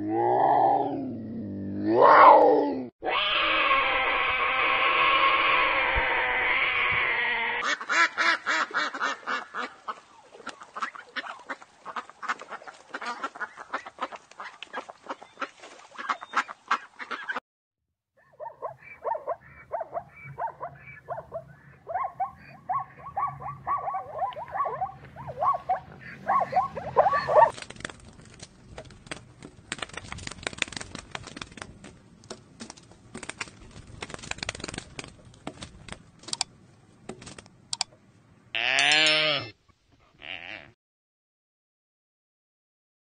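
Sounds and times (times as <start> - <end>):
scuffling and crackling: 27.1 - 37.6
sharp clicks: 33.2 - 36.5, 37.1 - 38.0.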